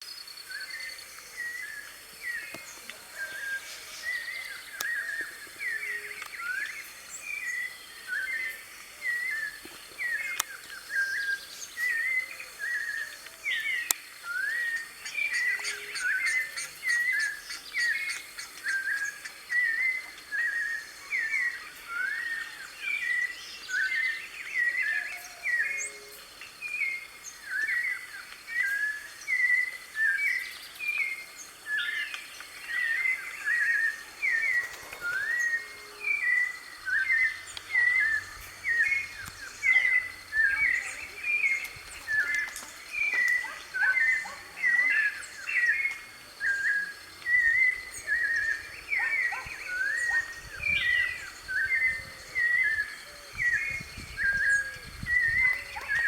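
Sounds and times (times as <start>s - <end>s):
bird singing whistled phrases: 31.7s - 56.0s.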